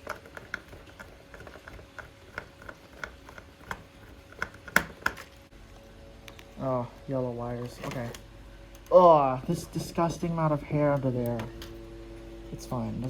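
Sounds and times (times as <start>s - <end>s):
plastic clicks and knocks: 0.0s - 5.3s.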